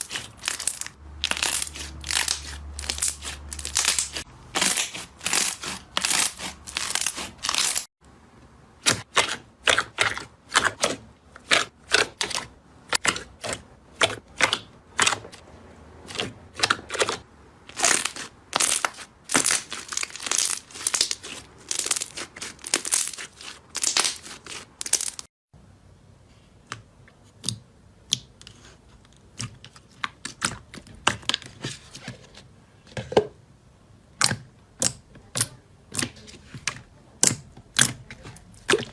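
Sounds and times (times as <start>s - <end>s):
slime crackling and popping: 0.0s - 7.9s, 17.7s - 25.3s.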